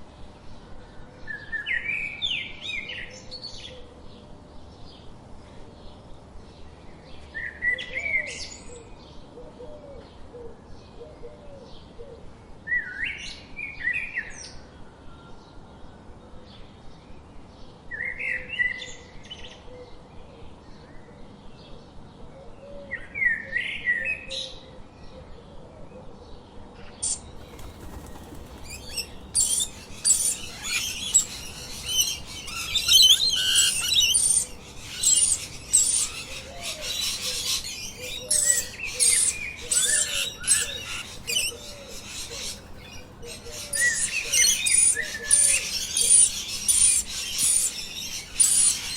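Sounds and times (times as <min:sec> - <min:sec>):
songbird singing: 0:27.1 - 0:48.9.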